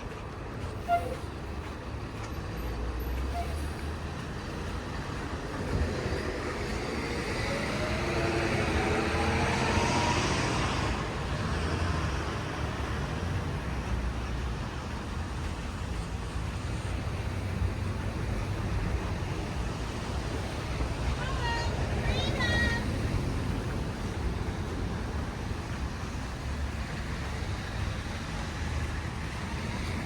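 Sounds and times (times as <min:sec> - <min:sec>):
city traffic rumble: 0:00.0 - 0:30.0
vehicle accelerating past: 0:05.4 - 0:13.6.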